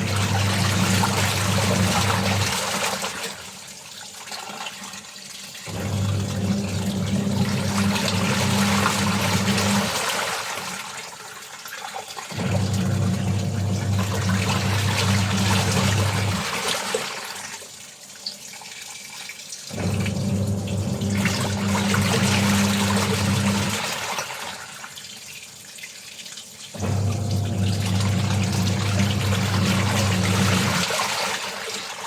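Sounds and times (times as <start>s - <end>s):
washing machine motor humming: 0.0s - 3.5s, 5.7s - 10.8s, 12.3s - 17.2s, 19.7s - 24.6s, 26.8s - 31.8s.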